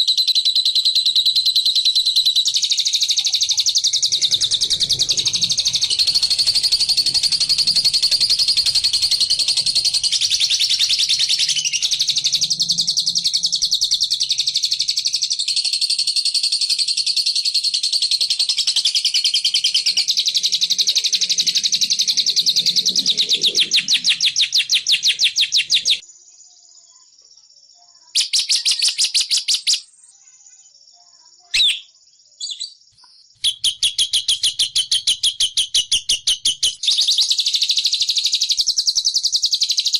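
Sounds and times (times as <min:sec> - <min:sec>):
bird chattering: 0:00.8 - 0:15.7, 0:17.8 - 0:26.0
single bird calls: 0:31.5 - 0:32.8.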